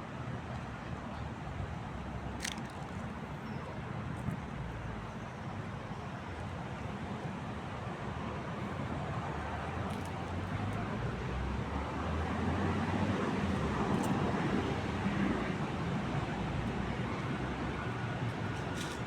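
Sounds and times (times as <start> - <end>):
road traffic passing: 7.5 - 19.0.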